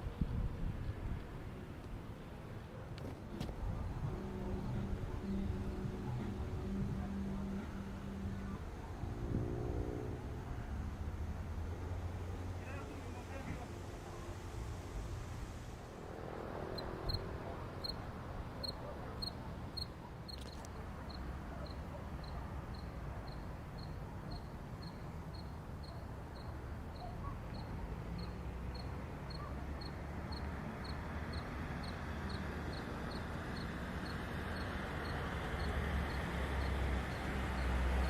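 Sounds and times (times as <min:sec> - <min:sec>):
low traffic rumble: 0:00.0 - 0:38.0
cricket chirping: 0:16.8 - 0:38.0.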